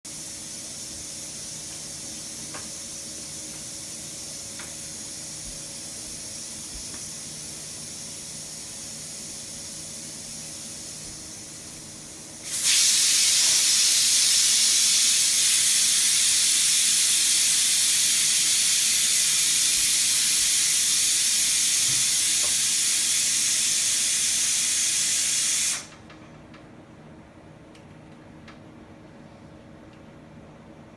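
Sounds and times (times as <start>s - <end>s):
steady hiss: 0.1s - 26.0s.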